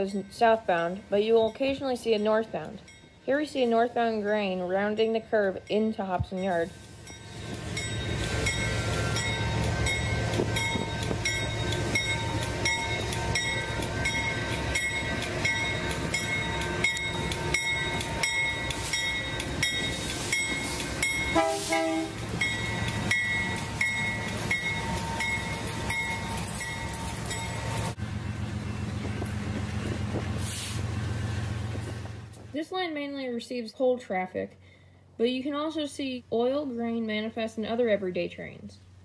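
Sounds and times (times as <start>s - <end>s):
diesel locomotive engine drone: 0.0s - 33.4s
high ringing of wheels: 5.0s - 30.2s
wheels clacking over rail joints: 7.4s - 32.9s
train horn: 21.3s - 22.2s.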